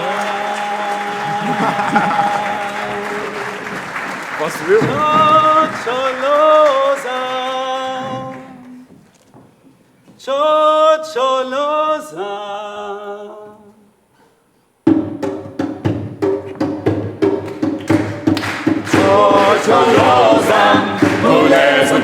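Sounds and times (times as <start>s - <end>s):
a cappella choir singing chords: 0.0s - 4.0s, 4.8s - 9.0s, 10.2s - 14.1s, 17.9s - 22.0s
sharp percussive beats: 14.9s - 22.0s.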